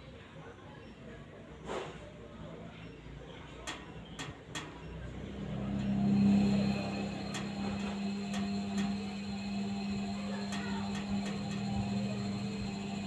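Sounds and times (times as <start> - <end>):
washing machine motor hum: 3.4 - 13.0.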